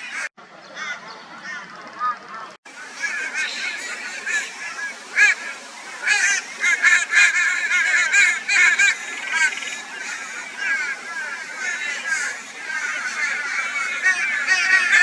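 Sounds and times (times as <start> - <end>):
crows cawing harshly: 3.0 - 15.0.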